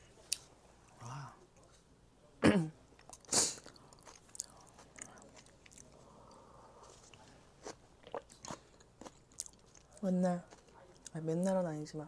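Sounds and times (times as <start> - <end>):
soft chewing with mouth clicks: 2.9 - 11.6.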